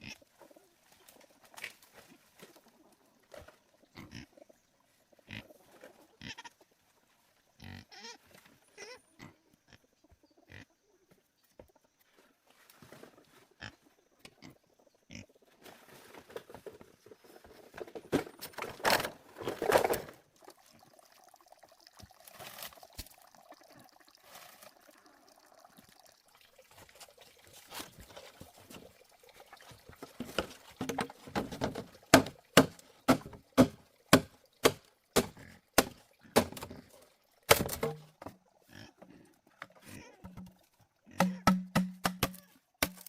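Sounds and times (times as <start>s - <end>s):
sharp knocks: 41.2s - 43.0s.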